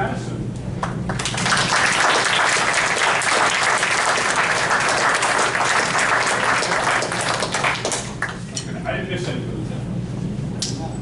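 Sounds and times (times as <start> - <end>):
audience applause: 0.8 - 8.4.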